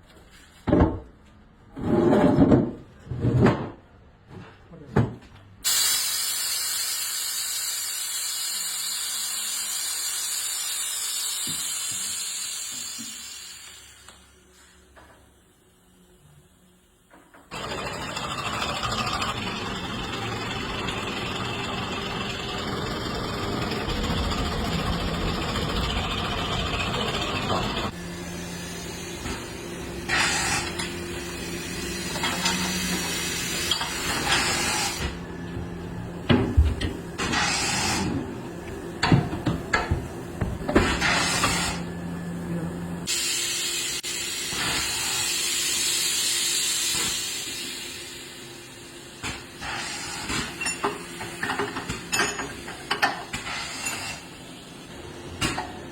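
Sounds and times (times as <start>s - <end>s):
compressed air hissing: 5.6s - 14.1s
machine hum: 17.5s - 30.1s.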